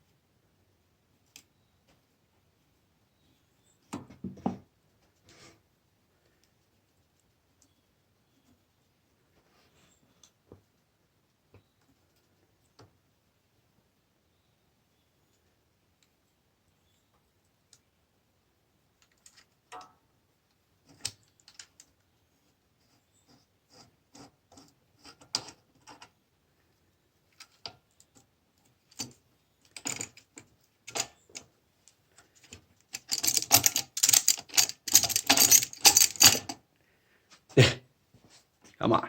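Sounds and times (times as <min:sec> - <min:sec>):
metal tools clicking and rattling: 0:28.9 - 0:30.2, 0:30.9 - 0:31.4, 0:32.9 - 0:36.6.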